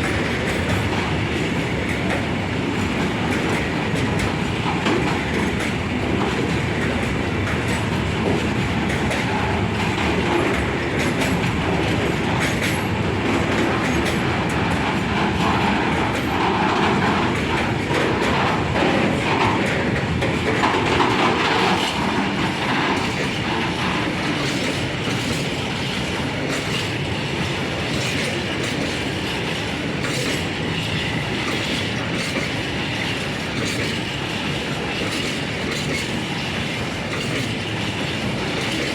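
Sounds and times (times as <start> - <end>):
train rumble: 0.0 - 38.9
train wheels clicking over rail joints: 0.0 - 38.9.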